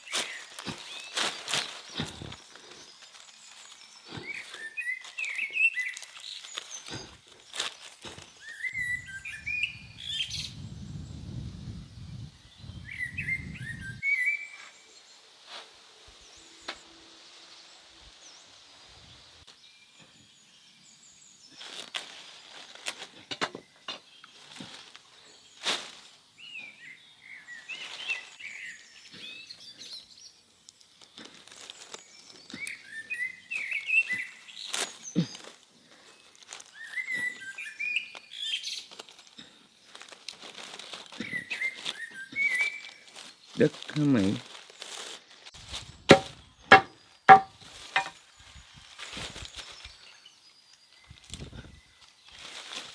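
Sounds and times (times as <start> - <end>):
small birds chirping: 0.0 - 11.4, 16.2 - 48.8
sharp clicks and knocks: 46.1 - 48.1.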